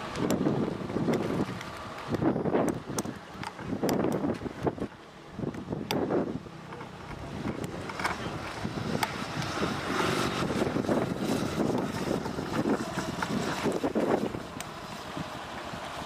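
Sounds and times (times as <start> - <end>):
wind buffeting microphone: 0.0 - 16.0
motorcycle engine running: 6.0 - 16.0.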